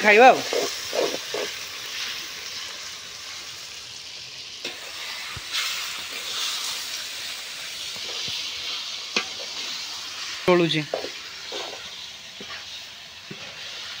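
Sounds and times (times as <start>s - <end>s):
chicken sizzling in hot oil: 0.0s - 14.0s
ladle knocking and scraping pan: 9.1s - 9.7s, 10.9s - 12.6s.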